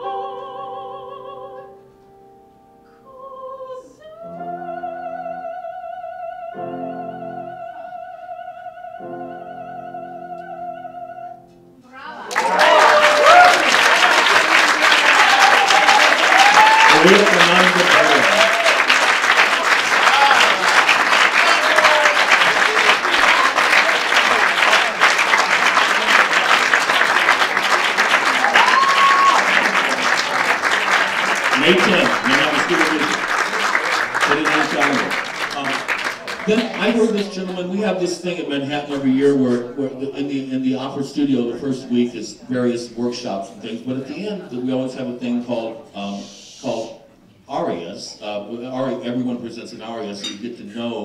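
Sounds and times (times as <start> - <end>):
operatic woman singing high note: 0.0 - 1.8, 3.0 - 12.4
piano chords: 0.0 - 13.1, 16.8 - 45.9
audience applauding: 12.1 - 38.0.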